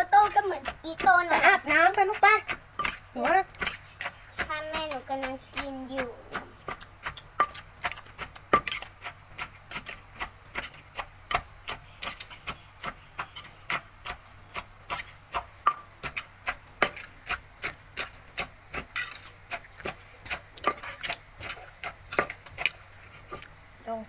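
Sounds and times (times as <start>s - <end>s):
pestle pounding in clay mortar: 0.0s - 23.5s.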